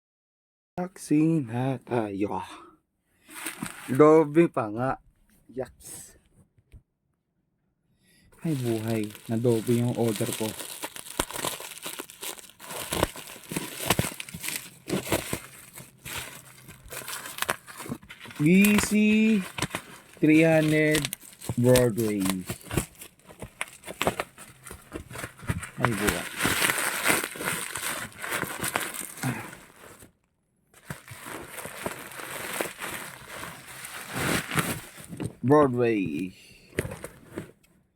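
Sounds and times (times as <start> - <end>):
packaging crinkling and rustling: 3.3 - 4.0, 8.4 - 30.2, 30.8 - 35.3.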